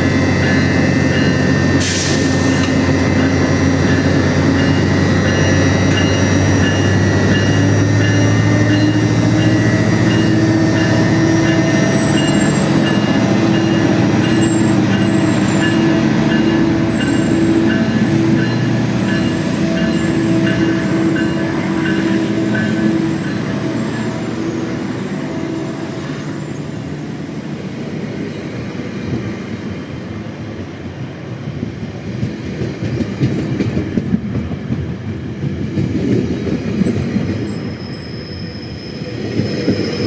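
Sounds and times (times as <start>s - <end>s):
locomotive engine drone: 0.0s - 30.4s
train cars rumbling past: 0.0s - 40.0s.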